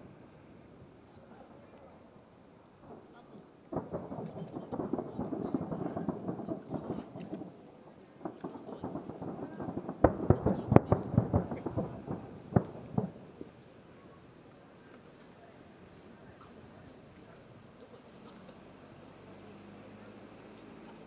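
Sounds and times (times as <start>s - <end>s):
fireworks booming and crackling: 2.7s - 14.2s
firework bangs: 2.8s - 13.7s.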